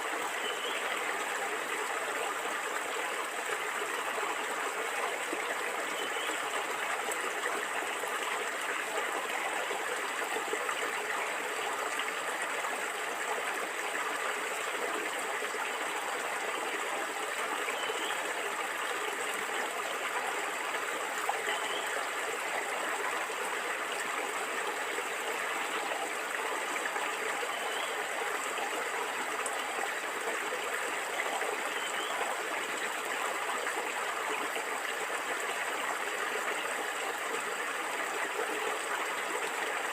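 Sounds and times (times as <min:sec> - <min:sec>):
stream water gurgling: 0:00.0 - 0:39.9.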